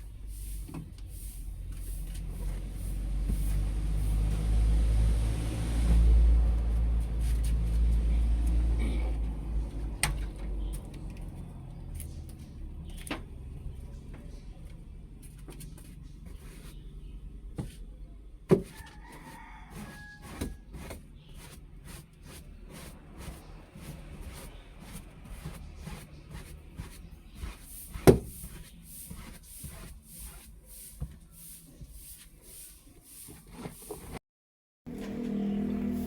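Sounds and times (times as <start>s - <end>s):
brushing strokes: 0.0s - 8.2s, 18.7s - 34.2s
clicks and knocks cleaning car: 18.5s - 21.2s, 25.4s - 29.8s
rooster crowing faintly: 18.6s - 20.8s.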